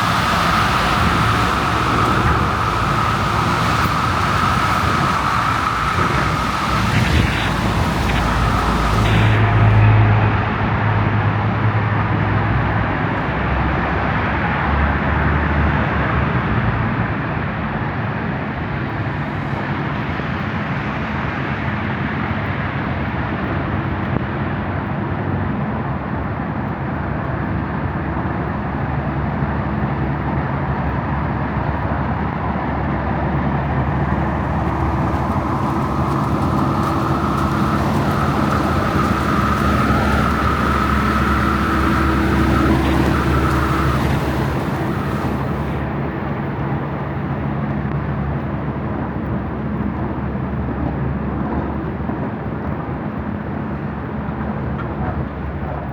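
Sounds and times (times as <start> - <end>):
strong gusting wind: 0.0 - 13.0, 32.3 - 47.8
street traffic: 0.0 - 24.2, 29.1 - 55.9.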